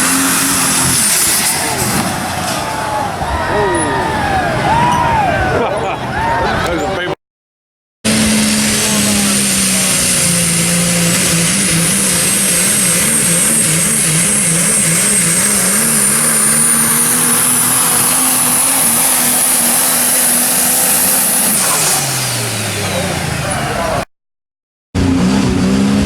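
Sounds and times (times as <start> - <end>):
high turbocharger whine: 0.0 - 3.1, 8.1 - 24.1, 25.0 - 26.0
diesel truck engine at full throttle: 0.0 - 7.2, 8.0 - 24.1, 25.0 - 26.0.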